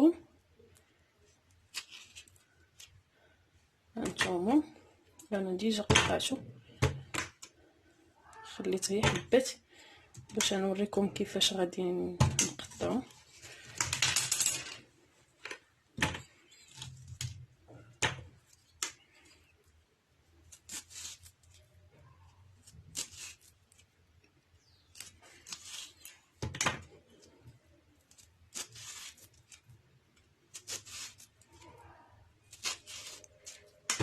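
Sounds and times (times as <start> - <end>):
knife cutting lemons: 32.5 - 34.0.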